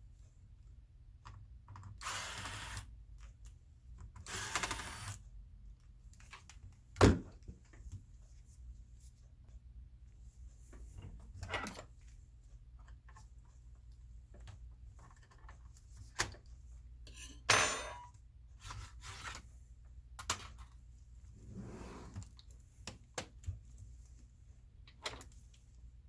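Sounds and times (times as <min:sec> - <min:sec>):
metal part dropped on hard surface: 0:17.1 - 0:18.1.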